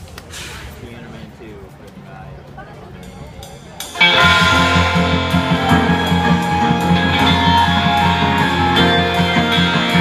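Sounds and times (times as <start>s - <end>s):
rock guitar strumming: 4.0s - 10.0s.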